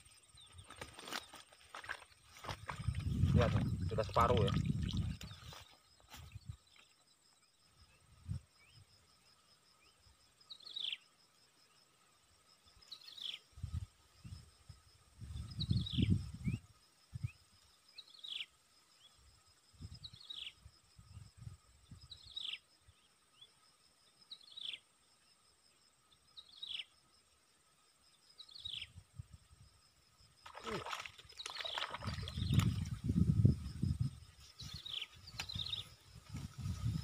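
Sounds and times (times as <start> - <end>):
insects droning: 0.0 - 37.0
low rumbles and thumps: 2.4 - 5.5.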